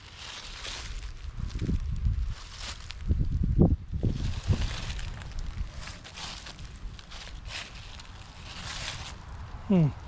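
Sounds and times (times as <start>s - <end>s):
footsteps rustling through undergrowth: 0.0s - 9.7s.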